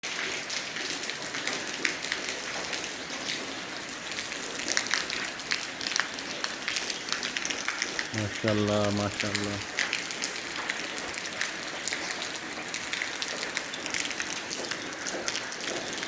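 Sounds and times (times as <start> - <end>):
rain drops pattering on hard surface: 0.0 - 16.0.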